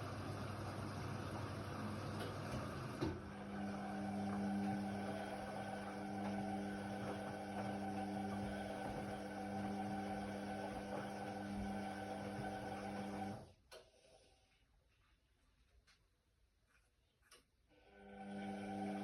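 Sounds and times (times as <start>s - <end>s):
washing machine motor hum: 0.0s - 13.5s, 17.8s - 19.0s.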